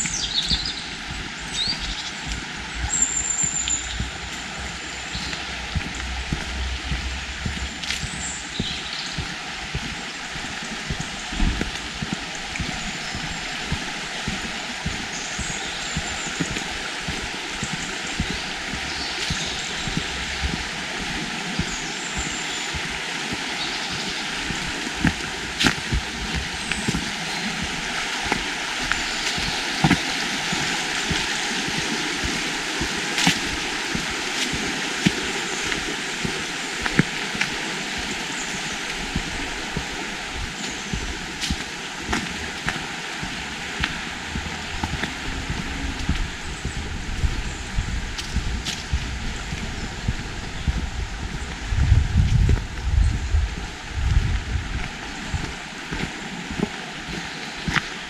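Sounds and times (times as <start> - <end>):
flowing water: 0.0 - 58.0.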